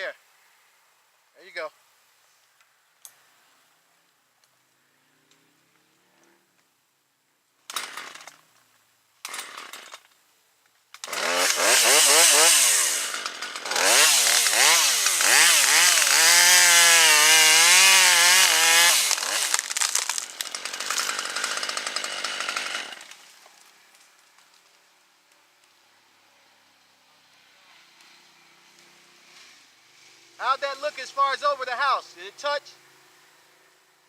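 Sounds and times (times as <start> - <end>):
chainsaw sputtering and revving: 7.7 - 8.3, 9.3 - 10.0, 11.0 - 23.2
chainsaw cutting a limb: 7.7 - 8.4, 9.3 - 10.0, 11.0 - 23.7.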